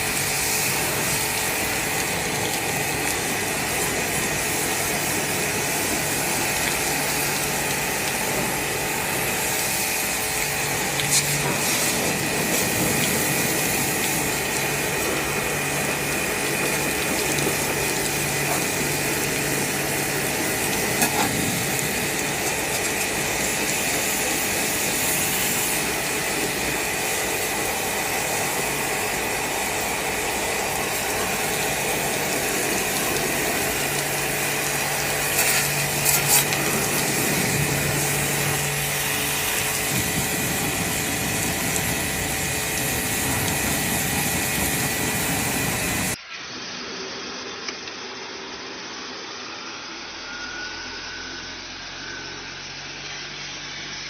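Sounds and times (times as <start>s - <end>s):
machine humming and whining: 0.0s - 54.0s.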